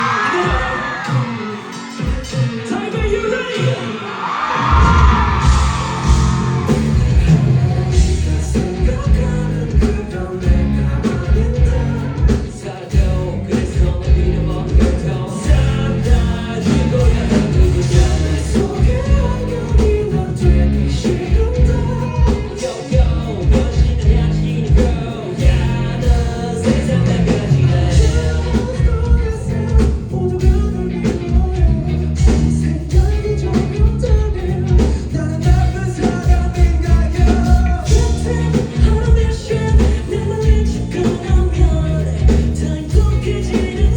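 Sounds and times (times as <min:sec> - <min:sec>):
heavy drum and bass beat: 0:00.0 - 0:43.9
lead vocal singing: 0:00.0 - 0:43.9
rock band playing live: 0:00.0 - 0:43.9.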